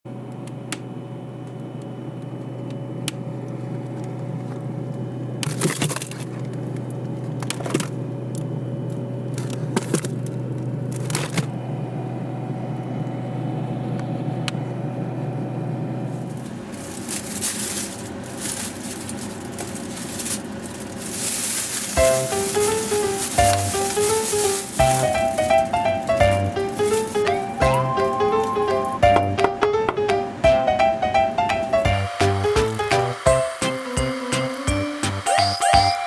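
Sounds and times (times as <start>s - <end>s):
kitchen appliance humming: 0.1s - 36.0s
clatters and rustles of handling: 5.4s - 8.0s, 9.3s - 11.5s, 16.3s - 29.0s.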